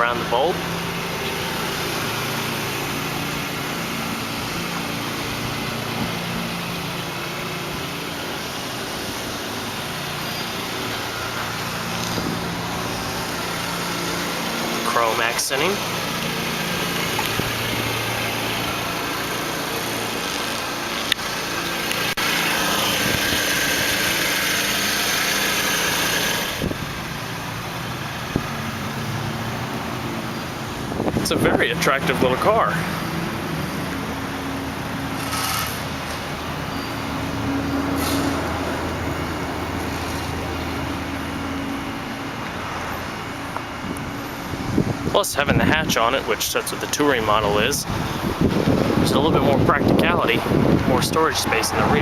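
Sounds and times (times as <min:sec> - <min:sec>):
car engine idling: 0:00.0 - 0:52.0.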